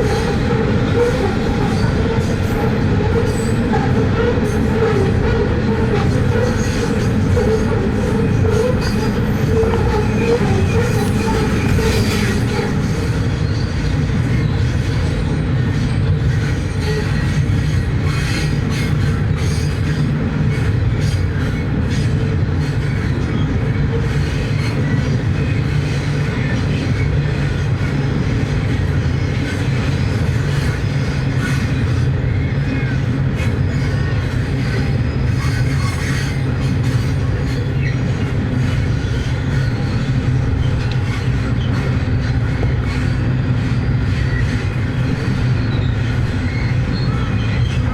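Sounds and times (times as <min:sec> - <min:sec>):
train wheels rumbling on rails: 0:00.0 - 0:47.9
wheels clicking over rail joints: 0:00.1 - 0:13.6.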